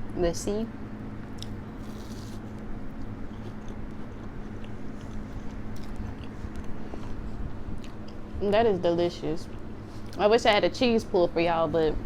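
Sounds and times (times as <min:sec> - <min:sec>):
electric fan humming: 0:00.0 - 0:12.0
close-up chewing: 0:01.4 - 0:07.2.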